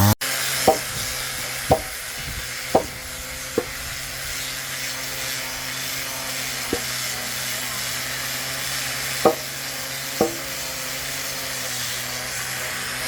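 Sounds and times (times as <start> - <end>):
sharp ringing knocks: 0.7 - 1.0, 1.7 - 2.0, 2.8 - 3.0, 9.3 - 9.6, 10.2 - 10.6.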